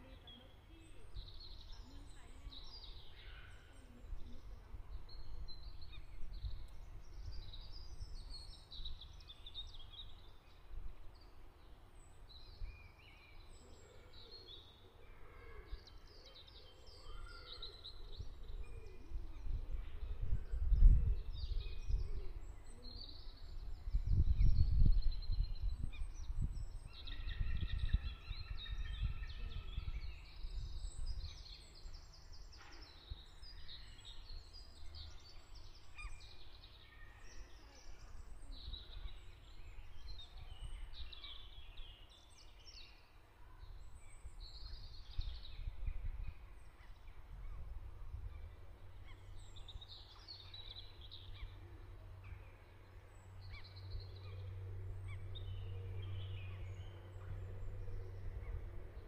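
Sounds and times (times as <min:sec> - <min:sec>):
songbirds chirping and warbling: 0:00.0 - 0:59.0
low background rumble: 0:43.6 - 0:59.0
steady low hum: 0:50.8 - 0:59.0.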